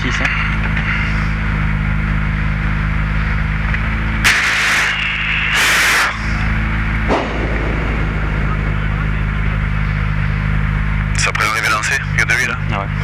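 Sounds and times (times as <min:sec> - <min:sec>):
car engine idling: 0:00.0 - 0:13.0
loud hiss bursts: 0:04.3 - 0:06.2.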